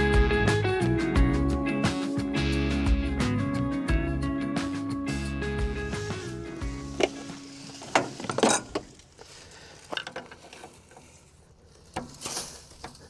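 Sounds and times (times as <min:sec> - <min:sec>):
metal parts clanking: 0:06.0 - 0:13.0.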